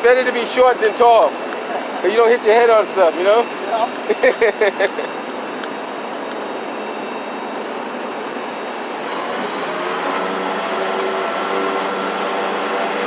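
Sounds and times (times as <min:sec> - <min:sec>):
vehicle engine hum: 0:07.3 - 0:13.0.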